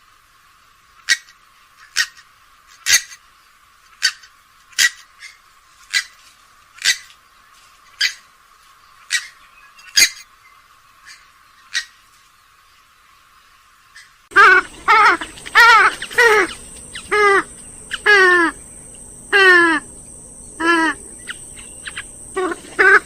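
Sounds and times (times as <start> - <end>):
swamphen calling: 4.0 - 6.2, 6.8 - 7.1, 8.9 - 10.3, 13.9 - 23.0.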